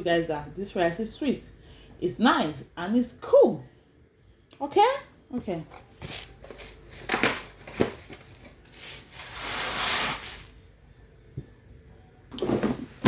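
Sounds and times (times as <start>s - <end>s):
packaging rustling and scraping: 5.7s - 10.6s.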